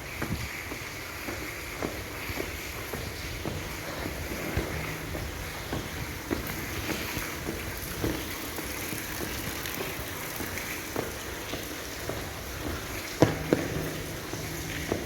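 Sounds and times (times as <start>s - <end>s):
outdoor hiss: 0.0s - 15.0s
footsteps on gravel: 0.2s - 15.0s
loud knocks: 3.0s - 8.4s, 11.5s - 15.0s.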